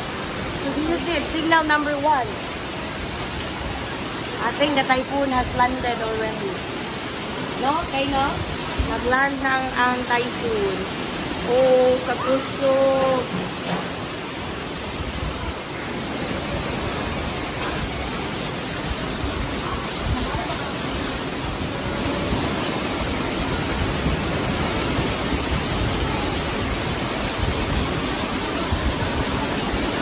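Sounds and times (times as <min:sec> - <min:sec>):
heavy wind-driven rain: 0:00.0 - 0:30.0.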